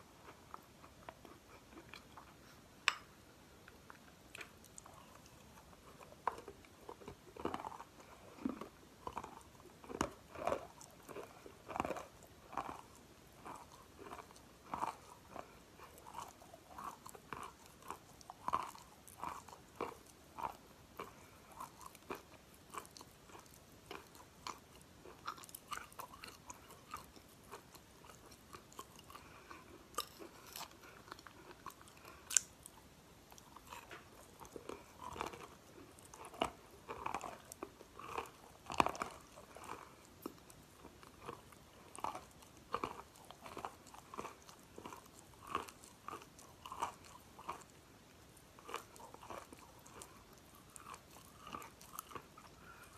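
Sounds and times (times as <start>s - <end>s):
chalk crunching and chewing: 3.7s - 52.9s.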